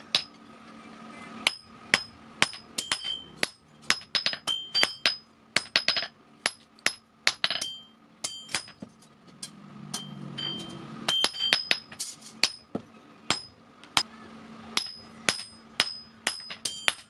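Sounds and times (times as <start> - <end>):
hammer ringing on anvil: 1.4 - 8.8, 9.9 - 12.7, 13.3 - 13.6, 14.8 - 17.0.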